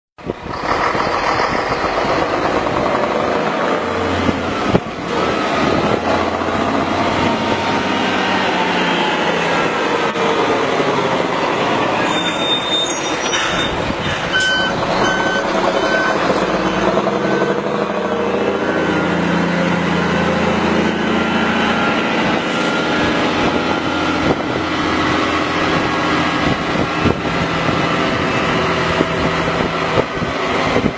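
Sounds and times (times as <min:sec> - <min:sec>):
truck diesel engine running: 0:00.2 - 0:30.9
short high beeps: 0:13.6 - 0:17.5.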